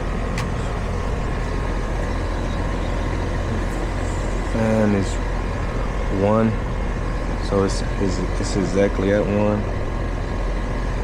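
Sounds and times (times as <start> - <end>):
air conditioner unit humming: 0.0 - 11.0.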